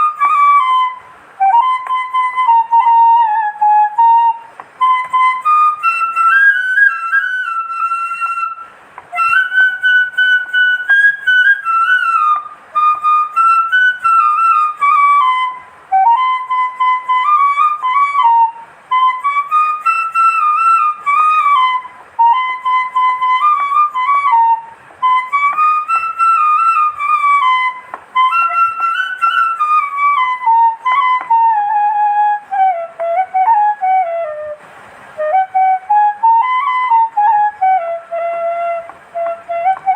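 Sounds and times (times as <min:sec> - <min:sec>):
solo flute melody: 0:00.0 - 0:39.9.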